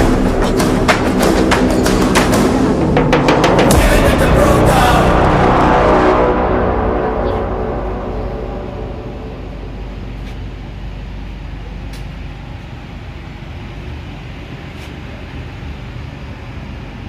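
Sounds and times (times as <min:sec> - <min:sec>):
train running low rumble: 0:03.7 - 0:17.0.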